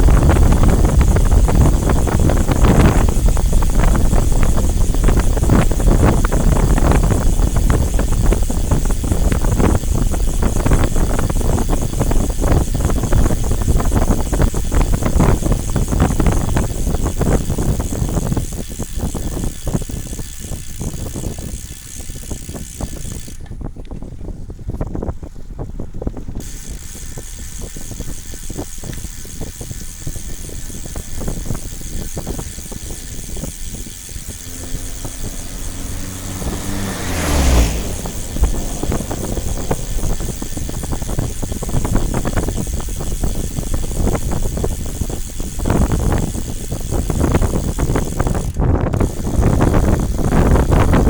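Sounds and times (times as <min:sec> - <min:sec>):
road vehicle rumble: 0:00.0 - 0:20.2, 0:26.0 - 0:51.0
vehicle passing close: 0:32.4 - 0:42.8.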